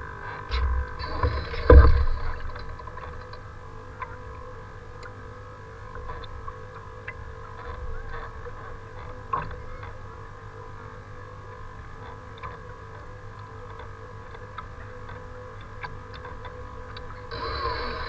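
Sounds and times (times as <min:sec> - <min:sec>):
steady hum: 0:00.2 - 0:03.6, 0:17.2 - 0:18.0.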